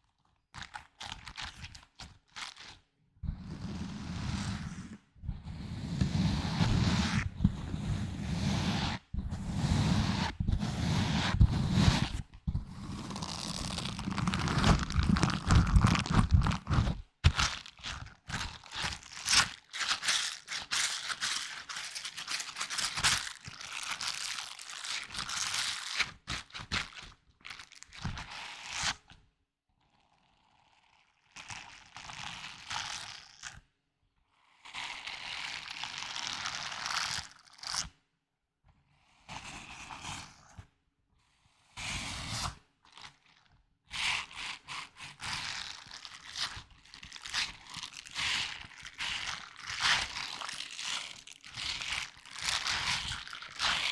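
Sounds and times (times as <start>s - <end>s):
object crinkling and crunching: 0.6s - 2.8s, 12.9s - 28.9s, 44.8s - 53.9s.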